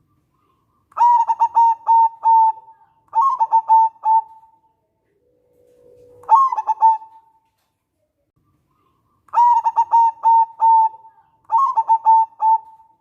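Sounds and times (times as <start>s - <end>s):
dove cooing: 0.4s - 4.6s, 5.6s - 7.4s, 9.4s - 13.0s.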